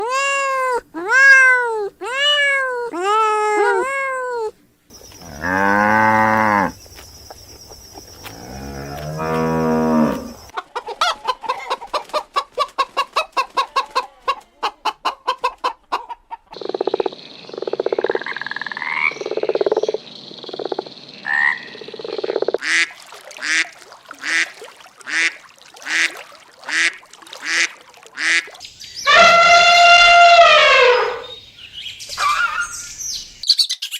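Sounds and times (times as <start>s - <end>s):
long arched animal call: 0.0s - 4.5s, 29.0s - 31.4s
meow-like calls: 0.0s - 4.6s, 29.1s - 31.3s
croaking calls: 4.9s - 12.2s, 26.7s - 33.5s
cow mooing: 5.2s - 6.8s, 8.4s - 10.4s, 29.1s - 31.3s
honking calls: 28.2s - 31.5s
short animal calls: 29.0s - 31.4s.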